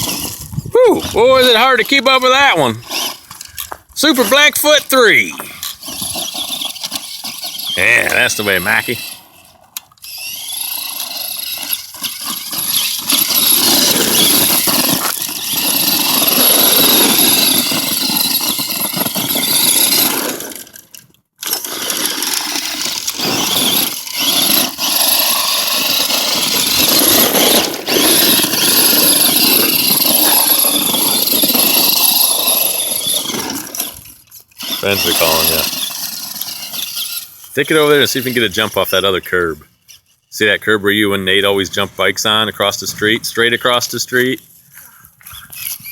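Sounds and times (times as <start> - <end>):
toy truck electric motor whining: 0.0 - 40.1, 45.2 - 45.9.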